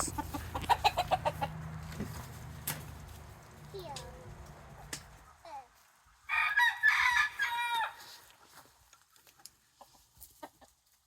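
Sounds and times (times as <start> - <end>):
rooster crowing: 6.3 - 8.2.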